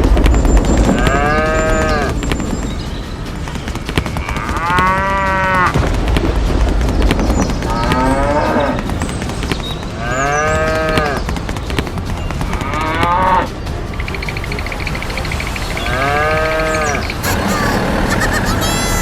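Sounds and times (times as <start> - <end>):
steady low rumble: 5.2 - 10.4.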